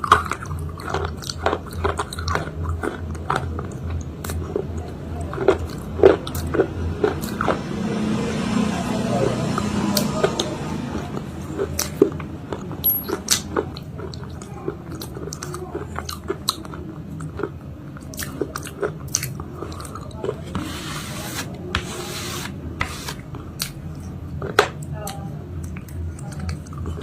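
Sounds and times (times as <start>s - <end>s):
crunchy chewing: 0.0s - 7.8s, 9.6s - 21.2s.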